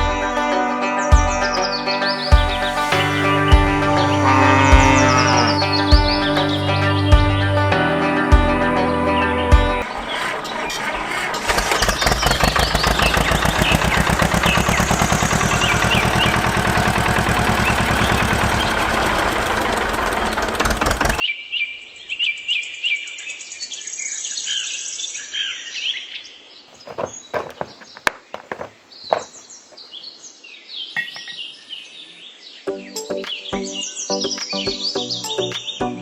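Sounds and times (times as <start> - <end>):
birds chirping: 2.0 - 21.2, 26.6 - 36.0
small engine running: 2.3 - 21.2.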